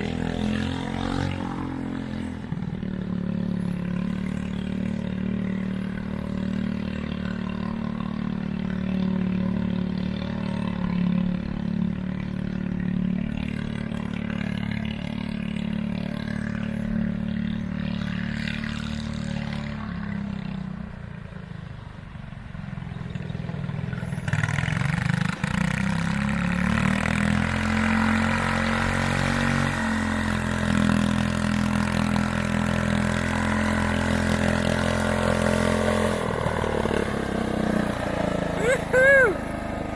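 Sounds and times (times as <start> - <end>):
garden tractor engine running: 23.2 - 39.9.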